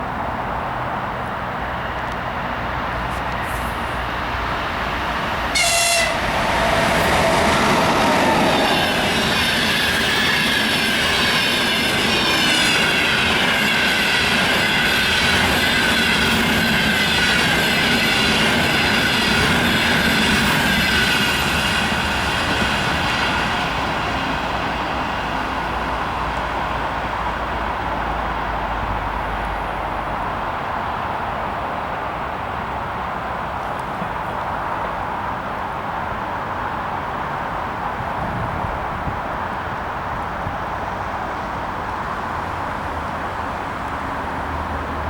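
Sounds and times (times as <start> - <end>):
train rolling noise: 0.0 - 45.0
train horn blast: 5.5 - 10.3.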